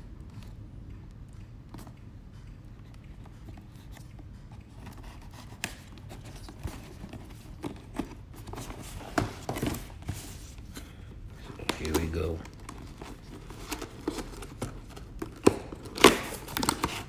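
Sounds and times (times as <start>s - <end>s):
box tape being cut: 11.4s - 17.0s.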